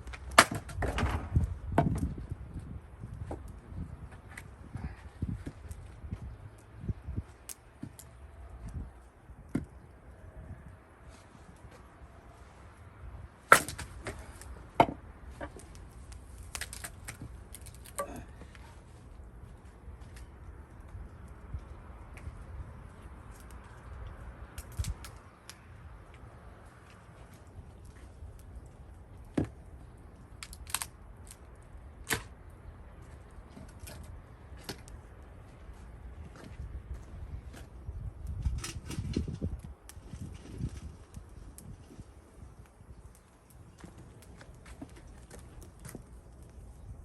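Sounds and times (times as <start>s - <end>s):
wood cracking: 0.0s - 2.1s, 13.4s - 18.8s, 23.2s - 35.0s, 42.6s - 46.7s
axe chopping wood: 13.5s - 14.2s.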